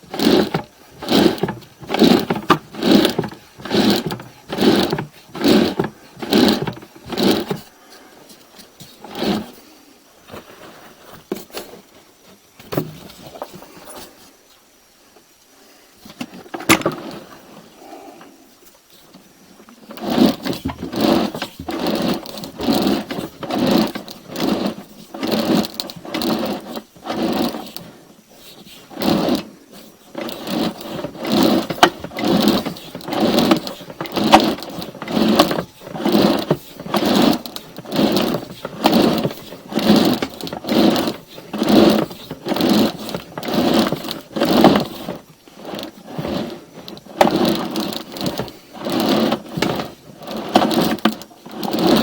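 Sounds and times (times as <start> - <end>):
rhythmic mechanical clatter: 30.1 - 52.0.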